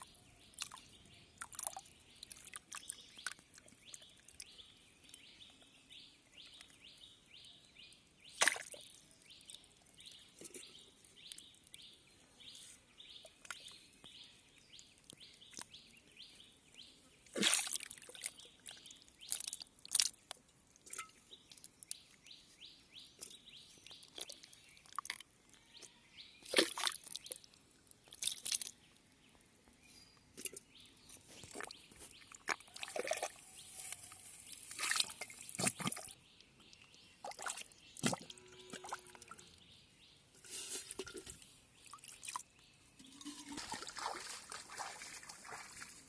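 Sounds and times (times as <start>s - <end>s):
pond water splashing: 8.2s - 11.6s, 17.3s - 21.8s, 26.4s - 28.8s, 31.3s - 39.4s, 40.4s - 46.0s.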